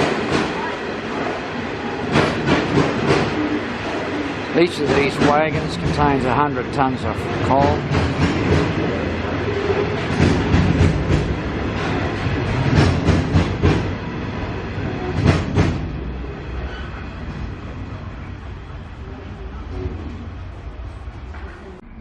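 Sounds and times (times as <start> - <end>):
wagon wheels clacking over rail joints: 2.1 - 6.4.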